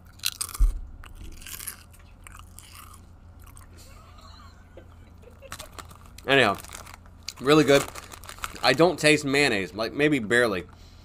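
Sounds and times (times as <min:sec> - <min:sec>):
chewing and crunching potato chips: 0:00.0 - 0:04.0, 0:05.2 - 0:09.4
loud thump: 0:00.5 - 0:01.5.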